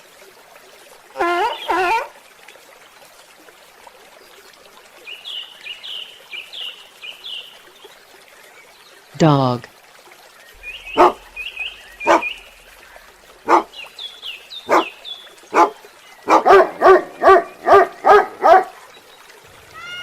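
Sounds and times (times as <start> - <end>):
dog barking: 11.0 - 11.3, 12.0 - 12.4, 13.5 - 13.7, 14.7 - 14.9, 15.5 - 18.8.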